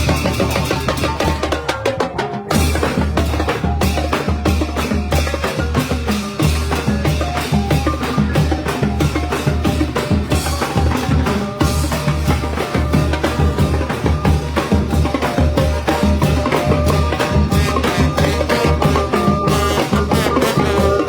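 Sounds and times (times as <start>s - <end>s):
drums fast beat: 0.0s - 21.0s
brass band playing: 16.8s - 21.0s
bass line: 17.0s - 21.0s.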